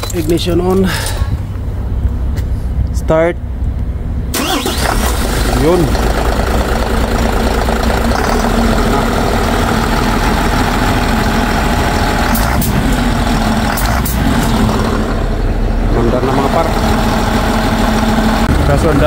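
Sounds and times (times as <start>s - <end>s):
diesel engine idling: 0.3s - 19.0s.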